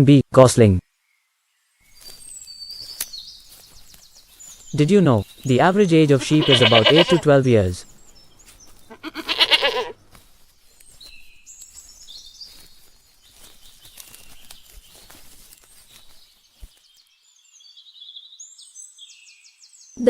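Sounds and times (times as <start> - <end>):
birds chirping faintly: 0.1 - 20.0
sheep bleating: 6.1 - 7.3, 8.9 - 10.0.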